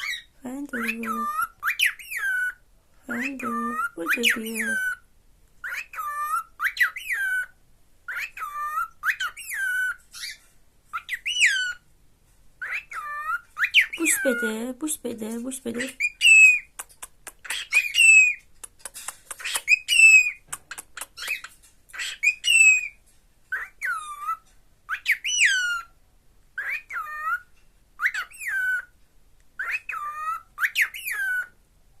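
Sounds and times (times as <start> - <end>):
cockatiel calling: 0.0 - 5.0, 5.6 - 11.9, 12.6 - 14.4, 15.8 - 25.9, 26.6 - 28.9, 29.6 - 31.6
cockatiel clicks: 16.8 - 17.8, 18.5 - 19.8, 20.5 - 21.6.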